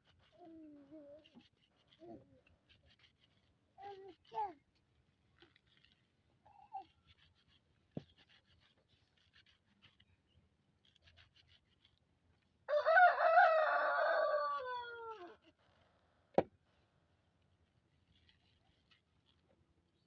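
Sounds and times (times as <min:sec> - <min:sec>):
rooster crowing: 0:12.7 - 0:15.3.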